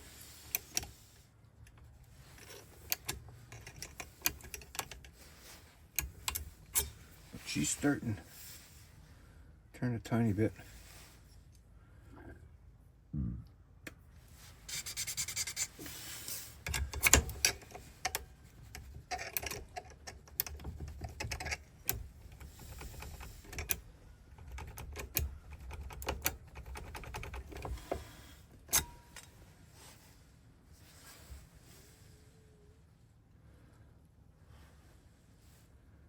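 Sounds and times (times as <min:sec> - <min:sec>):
key clicking in ignition lock: 0:16.7 - 0:18.2, 0:19.1 - 0:27.7, 0:28.7 - 0:29.3.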